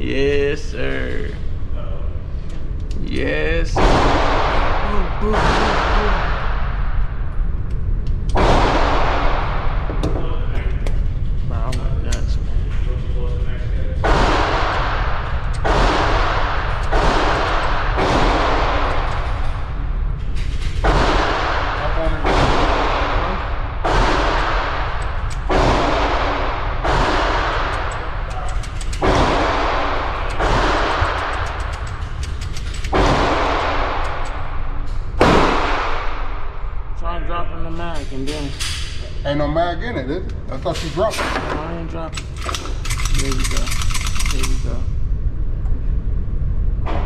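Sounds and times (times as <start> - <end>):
low rumble: 0.0 - 47.0
echoing gunshots: 3.7 - 7.6, 8.2 - 10.5, 14.0 - 37.0.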